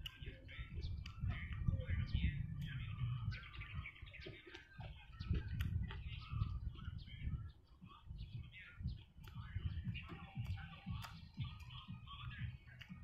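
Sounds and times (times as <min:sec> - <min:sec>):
wet chewing: 0:00.0 - 0:00.4, 0:04.2 - 0:06.2, 0:09.2 - 0:13.0
birds chirping: 0:00.0 - 0:13.0.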